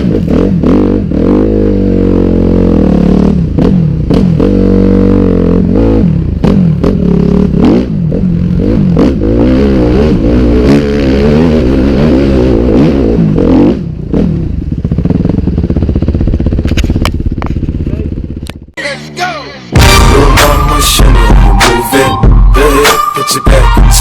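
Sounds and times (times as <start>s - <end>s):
dirt bike engine revving: 0.0s - 16.6s.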